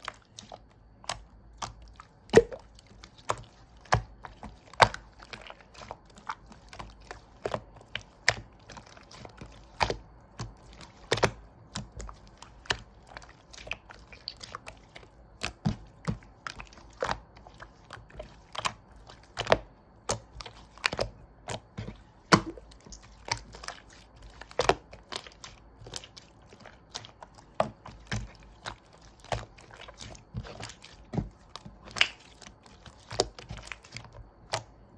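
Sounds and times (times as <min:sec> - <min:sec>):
slime clicking and popping: 0:01.1 - 0:05.1, 0:31.8 - 0:32.4.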